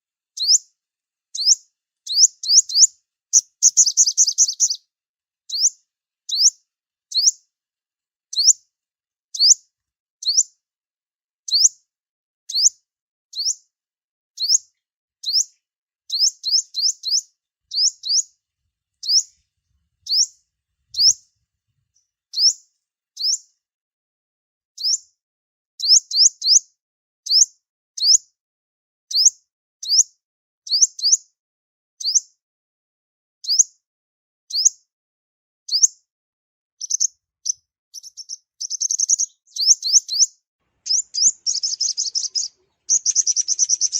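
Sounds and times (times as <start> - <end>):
bird chirping: 0.4 - 0.6, 1.3 - 4.9, 5.5 - 7.4, 8.3 - 8.6, 9.3 - 9.6, 10.2 - 10.5, 11.5 - 11.7, 12.5 - 12.7, 13.3 - 13.6, 14.4 - 15.5, 16.1 - 22.6, 23.2 - 23.4, 24.8 - 25.0, 33.4 - 33.6, 34.5 - 34.8, 35.7 - 35.9, 36.8 - 43.9.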